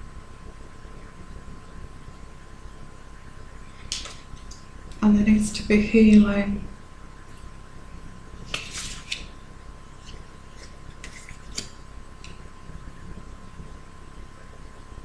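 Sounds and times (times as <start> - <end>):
faint high hum: 0.0 - 15.0
cards sliding on a table: 8.5 - 9.3.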